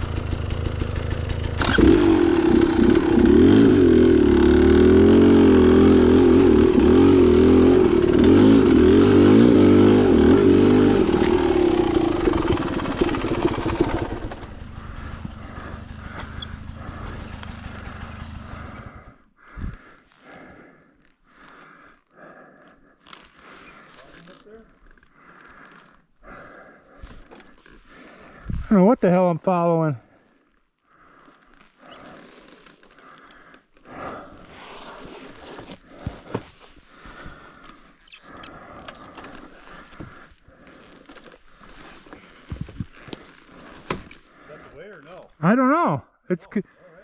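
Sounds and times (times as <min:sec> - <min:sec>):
dirt bike engine revving: 0:00.0 - 0:19.1.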